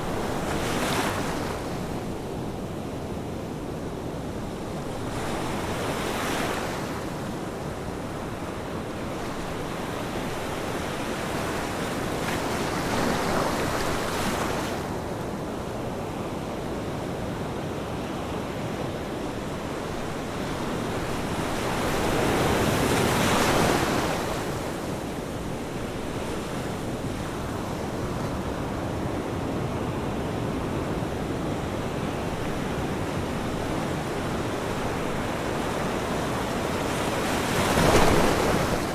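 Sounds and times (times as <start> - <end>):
ocean waves breaking: 32.0 - 38.9.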